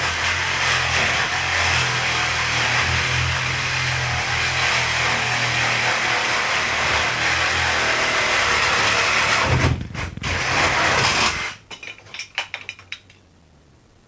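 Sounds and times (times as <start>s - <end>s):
electric saw cutting metal: 0.0s - 11.6s
short knocks and rattles: 9.1s - 13.2s.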